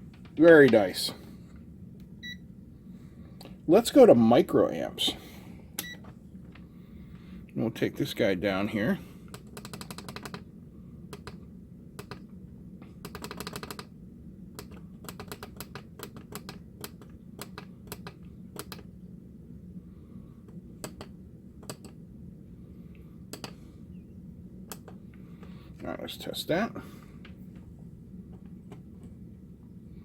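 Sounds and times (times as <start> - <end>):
faint low hum: 0.0 - 30.0
ratcheting clicks: 9.3 - 10.4.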